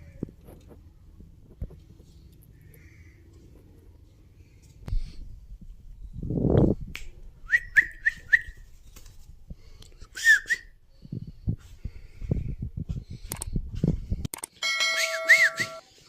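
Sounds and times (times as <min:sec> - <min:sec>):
high whistled chirps: 0:14.9 - 0:15.8.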